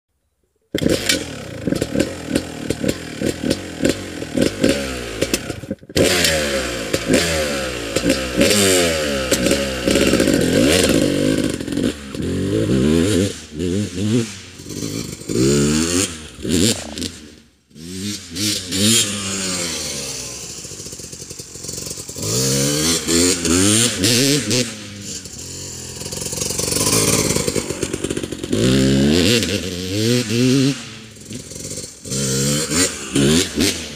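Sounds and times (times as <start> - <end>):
motocross bike engine revving: 0.7 - 33.9.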